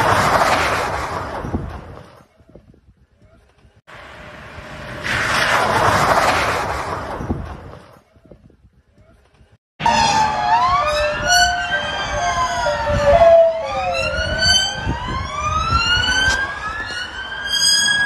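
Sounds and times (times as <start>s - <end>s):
low traffic rumble: 0.0s - 18.0s
emergency sirens wailing: 9.8s - 18.0s.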